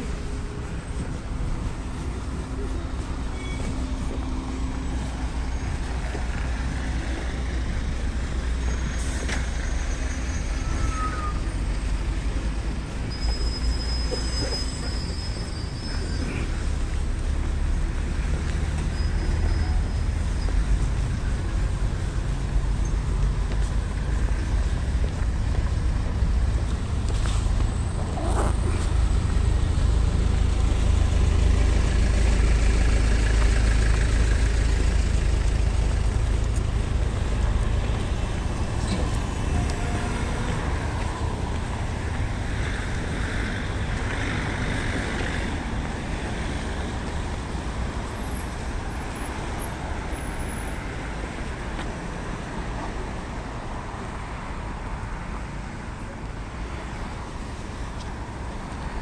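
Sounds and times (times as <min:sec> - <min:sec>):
vehicle rumble: 0:00.0 - 0:59.0
faint high squeaks and clicks: 0:03.2 - 0:04.8, 0:08.5 - 0:11.9, 0:13.0 - 0:16.7.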